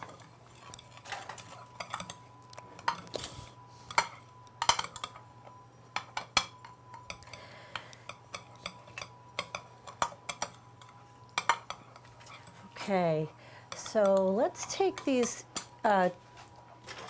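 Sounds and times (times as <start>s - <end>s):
utensil clinking against bowl: 6.0s - 12.8s
utensil stirring in bowl: 8.1s - 12.9s.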